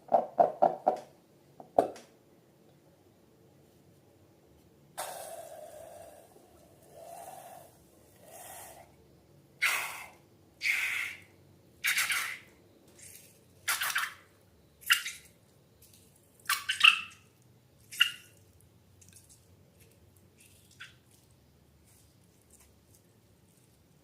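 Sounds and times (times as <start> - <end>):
slime squelching: 17.7 - 24.0.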